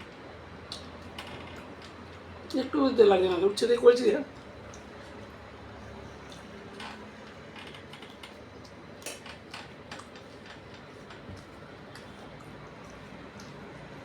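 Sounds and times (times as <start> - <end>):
person chewing food: 4.4 - 6.8, 8.2 - 14.0.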